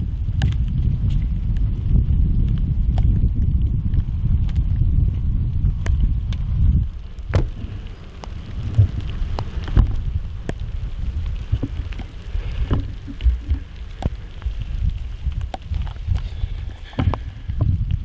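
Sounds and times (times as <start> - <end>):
microphone handling noise: 0.0 - 18.0
rain falling: 0.0 - 18.0
wind rumble: 0.0 - 18.0
raindrops tapping: 5.7 - 18.0.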